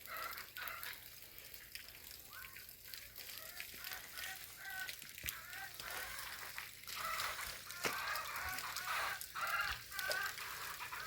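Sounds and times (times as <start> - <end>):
fowl calling: 3.4 - 11.0.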